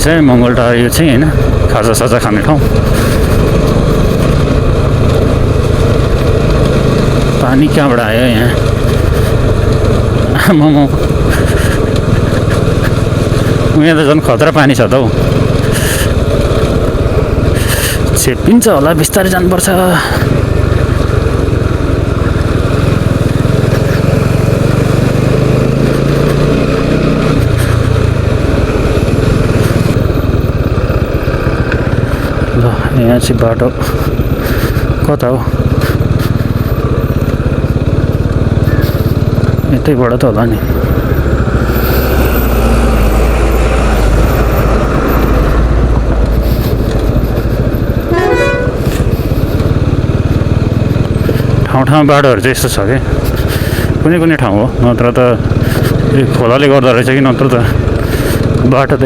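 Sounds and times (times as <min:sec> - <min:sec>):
motorcycle engine running: 0:00.0 - 0:59.0
road noise: 0:00.0 - 0:59.0
vehicle horn toot: 0:48.0 - 0:49.0.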